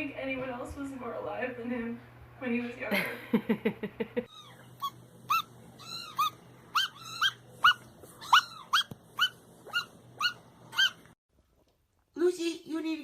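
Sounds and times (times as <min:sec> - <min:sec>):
dog whimpering: 0:04.3 - 0:11.0.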